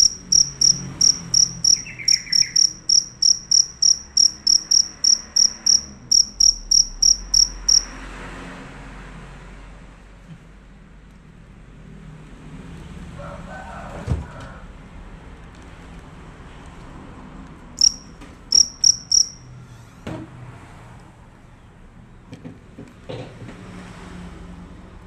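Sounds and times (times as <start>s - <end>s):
cricket chirping: 0.0s - 8.0s, 17.8s - 19.4s.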